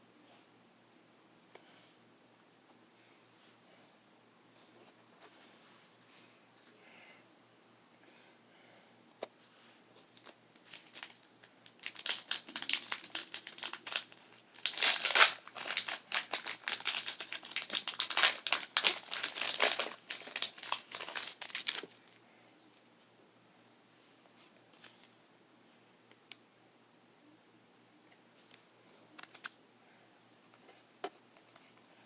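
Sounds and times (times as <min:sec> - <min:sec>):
foil wrapper crinkling and tearing: 0:10.2 - 0:22.0.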